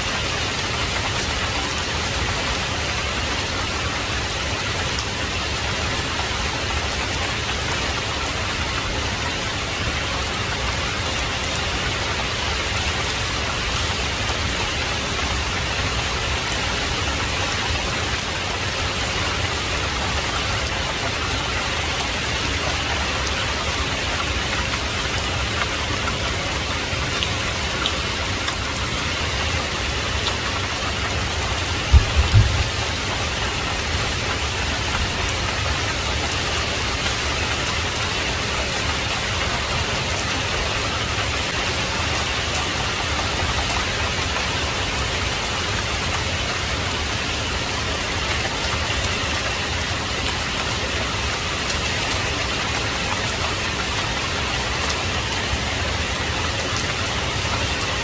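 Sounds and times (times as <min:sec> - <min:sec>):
heavy rain: 0:00.0 - 0:58.0
deep thump: 0:31.9 - 0:32.8.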